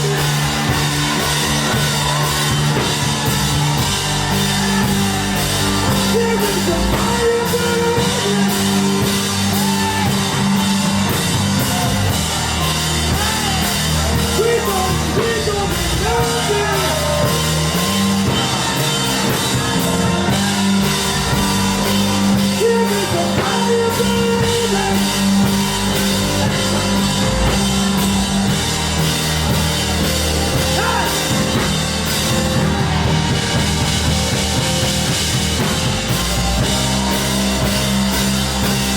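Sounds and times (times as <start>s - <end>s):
drum kit and cymbals: 0.0s - 38.9s
person singing: 4.1s - 10.6s, 12.6s - 28.1s.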